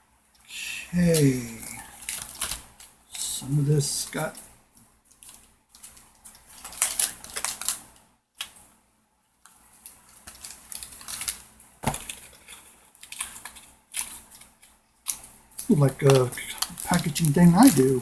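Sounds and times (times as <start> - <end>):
packaging crackling and clicking: 5.1 - 8.6, 9.8 - 15.3, 16.0 - 18.0.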